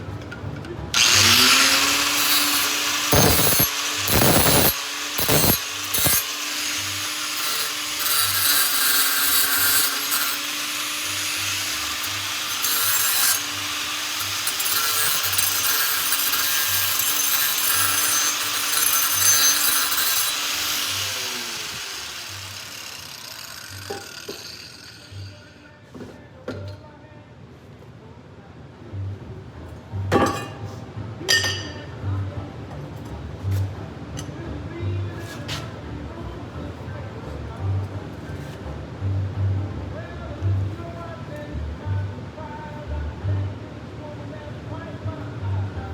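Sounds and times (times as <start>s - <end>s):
power tool grinding: 0.9s - 25.6s.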